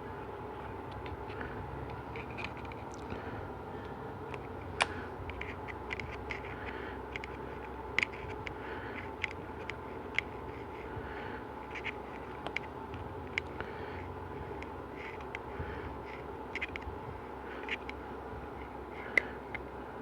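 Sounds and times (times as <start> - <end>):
steady background hum: 0.0 - 20.0
seal ring scraping and clicking: 0.9 - 3.1, 4.3 - 10.9, 11.6 - 13.6, 14.5 - 18.0.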